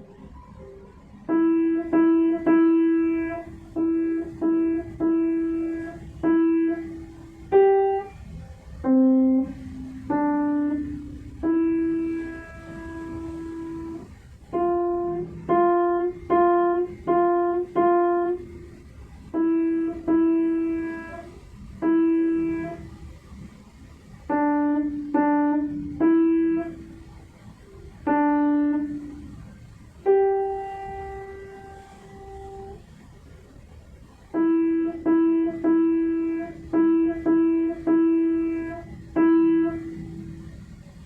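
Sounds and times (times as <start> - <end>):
slow piano melody: 0.0 - 41.0.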